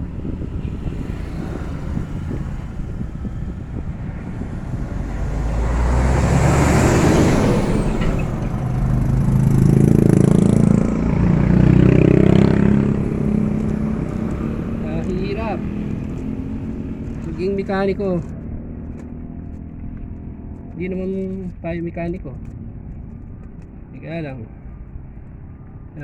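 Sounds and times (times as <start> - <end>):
heavy engine drone: 0.0 - 18.4
vehicles passing on road: 0.0 - 26.0.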